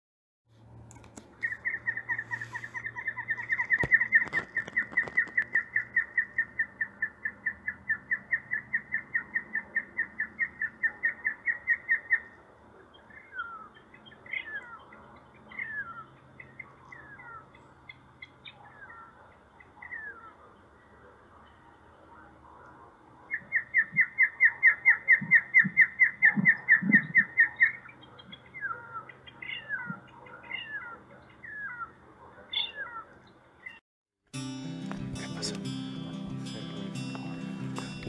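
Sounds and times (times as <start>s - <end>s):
bird whistling series: 23.3s - 28.8s.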